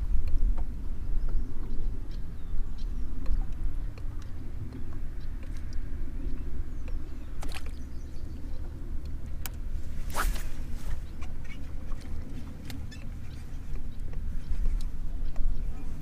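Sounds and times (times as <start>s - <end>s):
low open-air rumble: 0.0s - 16.0s
short swish: 10.0s - 11.0s.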